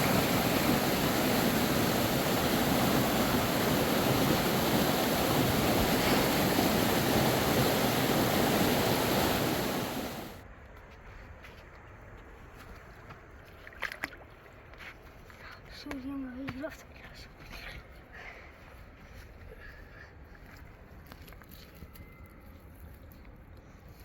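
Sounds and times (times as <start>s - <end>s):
river water rushing: 0.0s - 10.4s.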